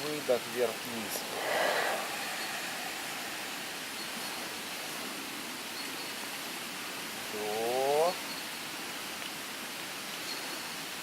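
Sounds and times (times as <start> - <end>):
outdoor background hiss: 0.0 - 11.0
breathy noise rush: 0.7 - 5.2.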